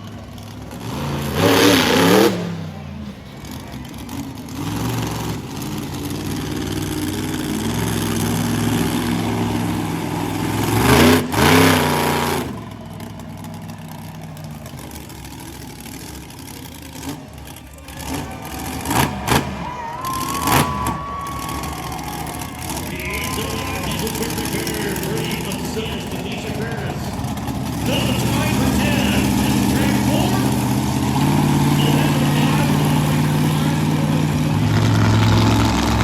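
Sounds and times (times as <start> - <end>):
truck engine revving: 0.0 - 36.0.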